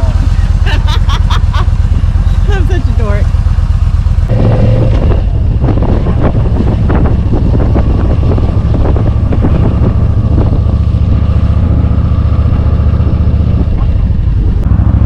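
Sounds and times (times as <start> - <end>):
motorcycle running at speed: 0.0 - 15.0
wind buffeting microphone: 4.2 - 15.0.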